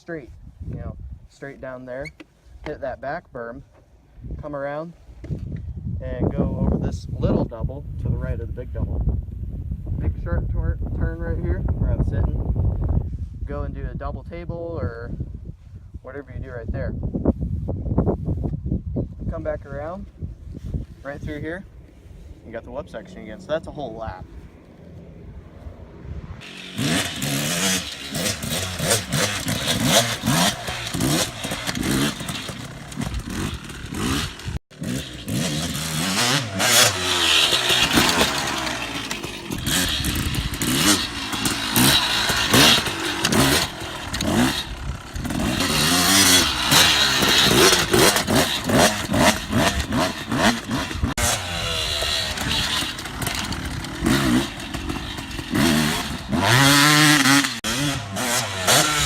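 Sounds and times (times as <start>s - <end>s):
dirt bike engine revving: 22.4s - 59.0s.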